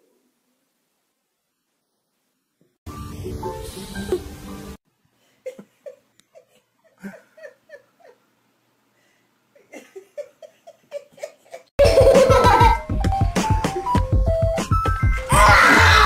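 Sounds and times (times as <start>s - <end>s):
person giggling: 5.4s - 8.2s, 9.5s - 12.8s
loud music: 11.8s - 16.0s.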